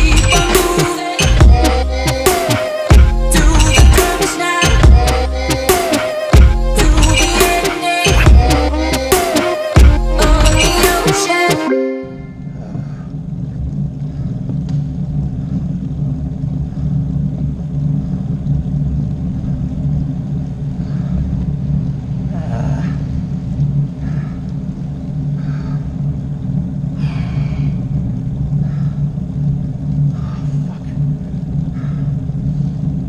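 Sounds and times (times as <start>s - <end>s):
steady low rumble: 0.0s - 11.0s, 12.1s - 33.0s.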